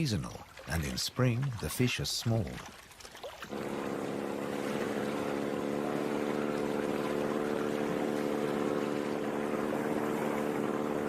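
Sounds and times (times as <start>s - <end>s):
rushing water: 0.0s - 11.0s
wind: 0.0s - 11.0s
motorboat engine running: 3.4s - 11.0s.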